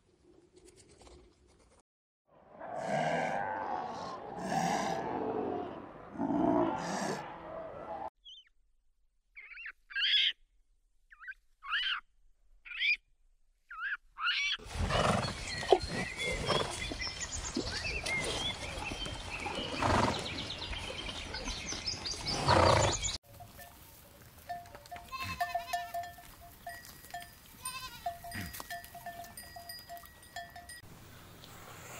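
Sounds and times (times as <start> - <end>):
outdoor background noise: 0.0 - 31.9
birds chirping: 9.3 - 10.4, 13.7 - 23.2
horse noises: 14.6 - 30.8.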